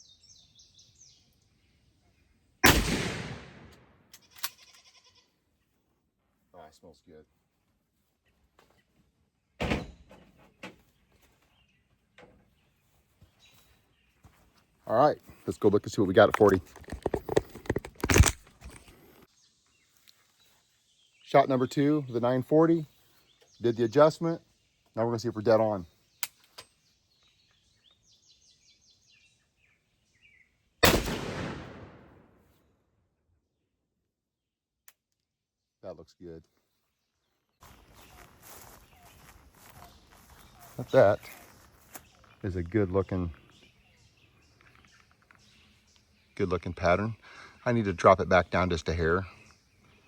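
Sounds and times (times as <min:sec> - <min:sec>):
shotgun shot: 0:02.6 - 0:03.9, 0:30.8 - 0:32.4
faint bird chirps: 0:36.7 - 0:42.4.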